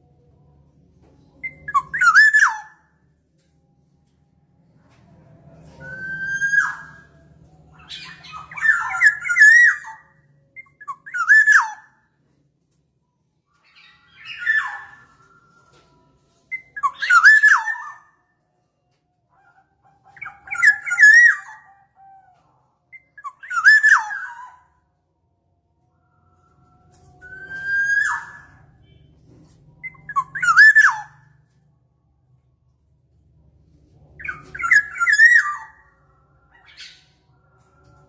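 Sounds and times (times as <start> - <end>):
bird calling with fluty whistles: 1.4 - 2.8, 5.8 - 7.1, 29.8 - 31.2, 34.2 - 35.9.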